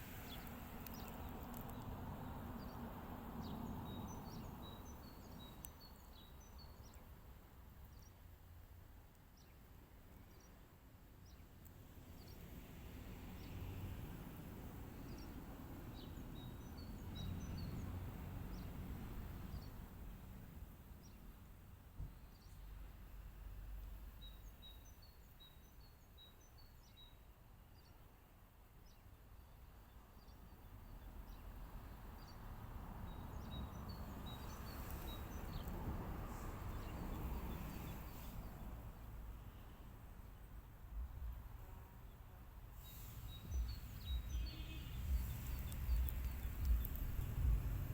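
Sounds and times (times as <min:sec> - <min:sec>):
small birds chirping: 0:00.0 - 0:47.9
low background rumble: 0:30.8 - 0:47.9.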